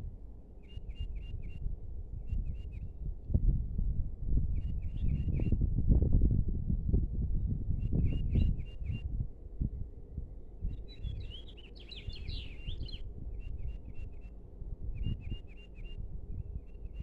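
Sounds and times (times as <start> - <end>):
small birds chirping: 10.9 - 13.0.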